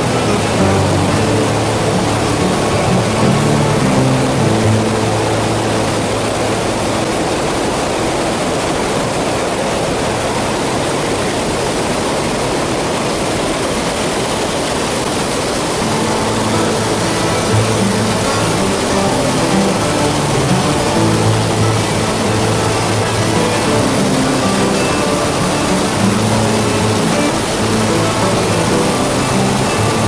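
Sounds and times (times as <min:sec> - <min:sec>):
background music with held notes: 0:00.0 - 0:07.3, 0:15.8 - 0:30.0
stream water rushing: 0:00.0 - 0:30.0.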